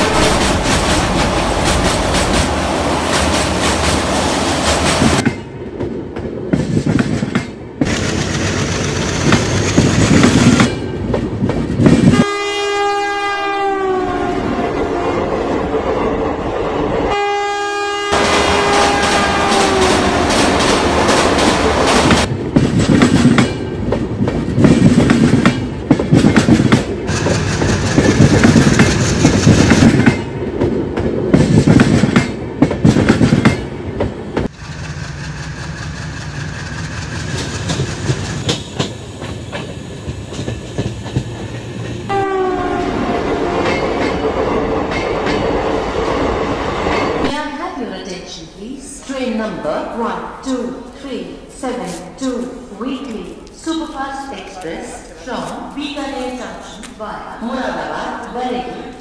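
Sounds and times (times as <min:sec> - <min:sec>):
train horn falling in pitch: 0:00.0 - 0:00.8, 0:12.1 - 0:15.2, 0:17.1 - 0:21.2, 0:42.1 - 0:43.9.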